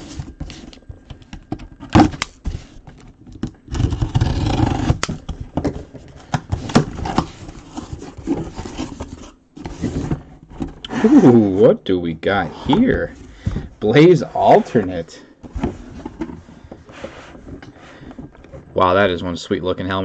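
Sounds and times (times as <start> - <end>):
cardboard packaging knocks and scrapes: 0.0 - 10.8, 12.7 - 13.8, 15.4 - 18.6.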